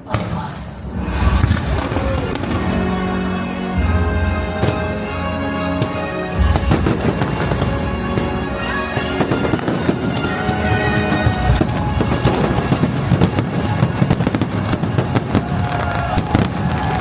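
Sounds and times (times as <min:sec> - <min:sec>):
firework bangs and crackles: 0:00.0 - 0:17.0
music playing: 0:00.0 - 0:17.0
deep firework boom: 0:01.0 - 0:02.9, 0:09.2 - 0:17.0.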